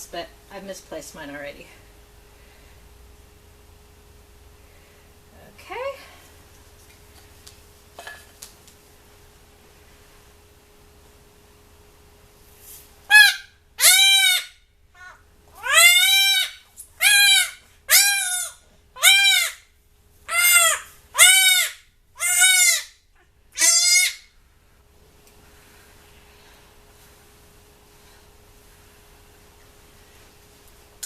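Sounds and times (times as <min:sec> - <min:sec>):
goat kid screaming: 0:13.1 - 0:19.6, 0:20.3 - 0:23.0, 0:23.6 - 0:24.3.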